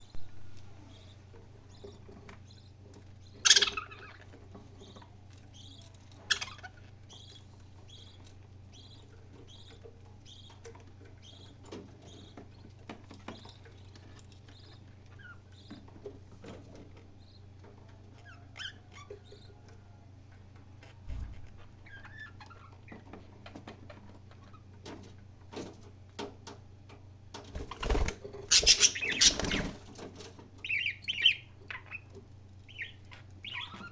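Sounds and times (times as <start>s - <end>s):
steady low hum: 0.0s - 33.9s
parrot chirping and calling: 3.4s - 4.2s, 6.3s - 6.8s, 28.5s - 29.8s, 30.6s - 32.0s, 32.7s - 33.9s.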